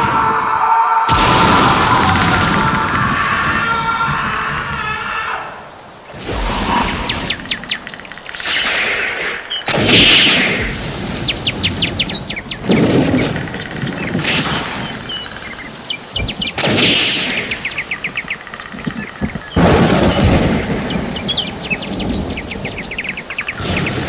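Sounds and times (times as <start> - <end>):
birds chirping and trilling: 0.0 - 24.0.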